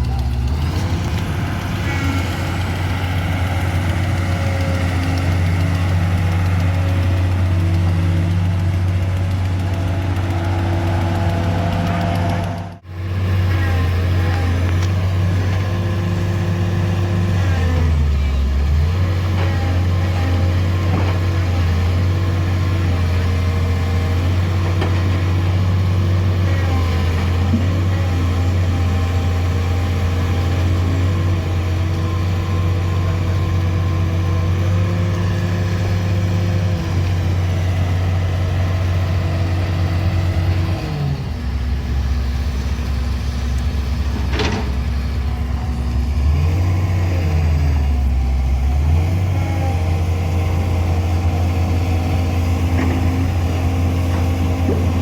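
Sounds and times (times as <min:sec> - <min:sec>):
heavy vehicle engine running: 0:00.0 - 0:55.0.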